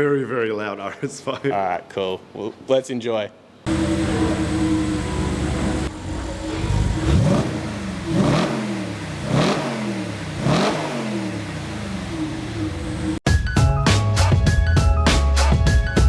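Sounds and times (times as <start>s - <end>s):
car engine idling and revving: 3.7s - 13.2s.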